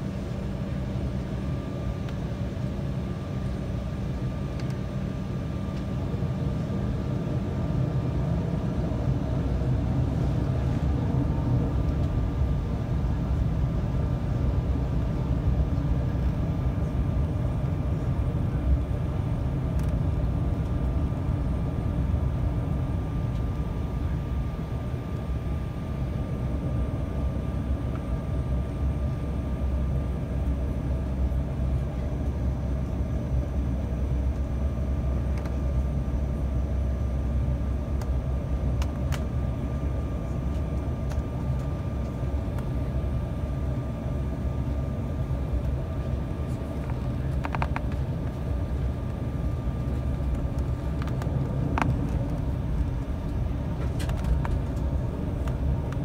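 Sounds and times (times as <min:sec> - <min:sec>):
faint steady whine: 0:00.0 - 0:56.0
jet engines humming: 0:00.0 - 0:56.0
low rumble: 0:46.6 - 0:56.0.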